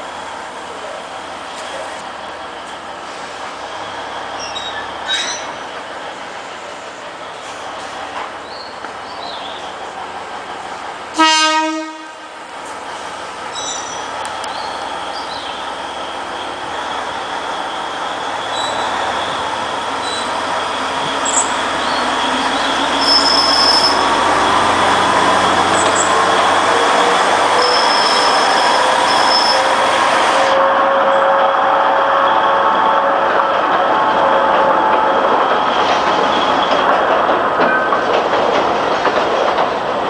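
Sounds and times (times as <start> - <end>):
train carriages rolling on track: 0.0 - 40.0
wheels squealing against rails: 1.5 - 5.9, 13.4 - 31.6, 32.2 - 38.1.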